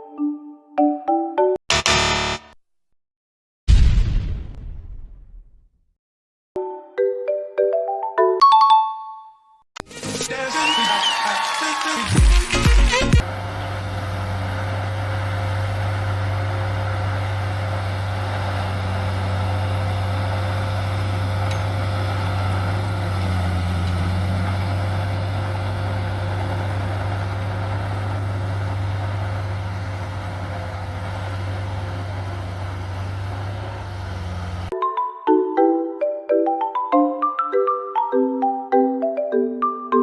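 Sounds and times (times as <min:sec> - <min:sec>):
heavy machine engine humming: 0:12.5 - 0:34.7.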